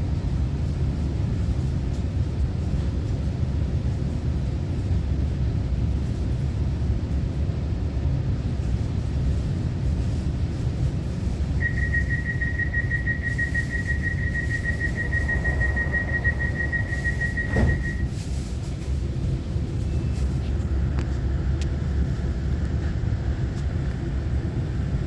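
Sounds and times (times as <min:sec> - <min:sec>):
train car rumble: 0:00.0 - 0:25.0
pulsing warning tone: 0:11.6 - 0:18.1.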